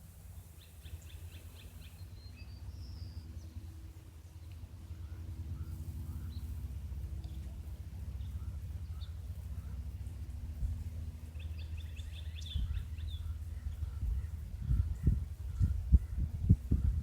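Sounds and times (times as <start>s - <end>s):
bird chirps: 11.3s - 16.2s.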